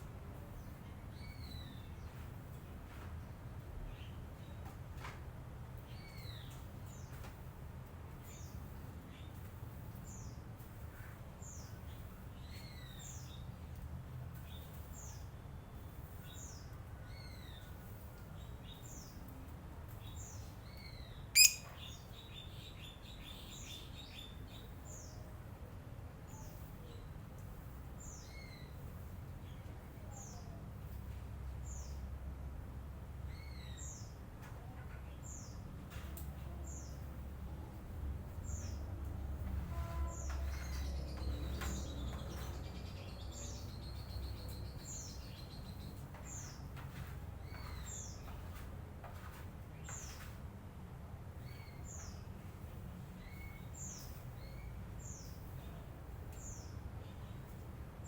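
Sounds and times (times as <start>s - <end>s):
lovebird chirping: 21.3s - 22.4s.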